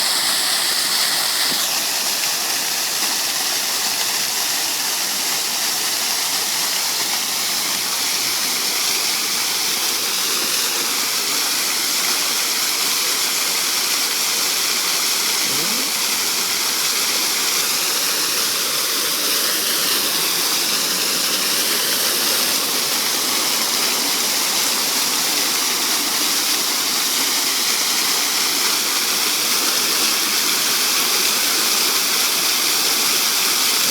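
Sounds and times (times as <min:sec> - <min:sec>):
water fountain splashing: 0:00.0 - 0:33.9.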